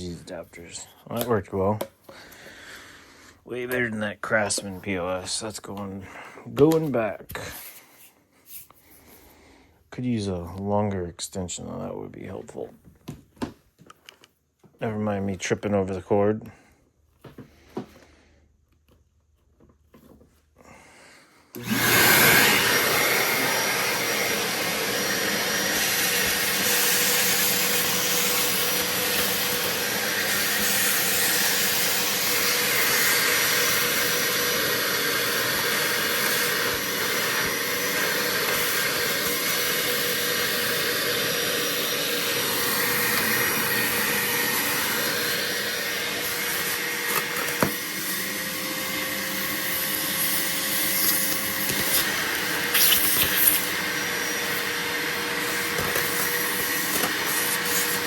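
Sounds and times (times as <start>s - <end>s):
shop vacuum running: 21.5s - 58.0s.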